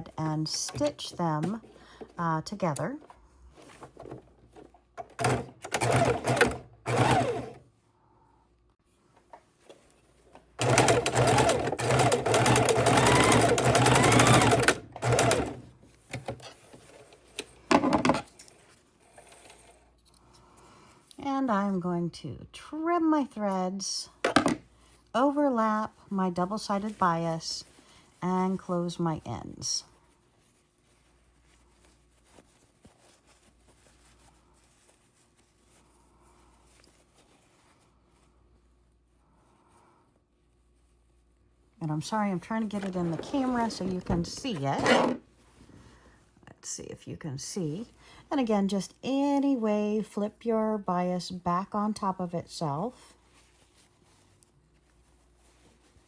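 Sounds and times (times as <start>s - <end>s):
sewing machine stitching: 5.0s - 7.6s, 10.6s - 16.4s, 42.6s - 45.2s.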